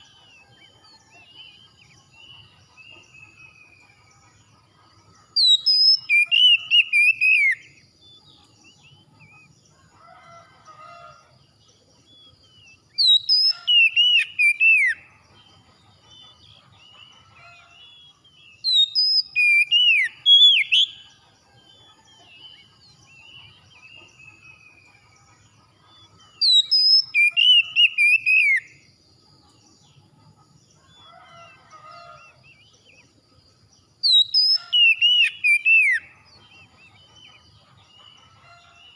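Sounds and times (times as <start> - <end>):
songbird whistled song: 0.0 - 10.3, 12.0 - 29.8, 33.9 - 38.9
faint bird chirps: 11.8 - 38.9.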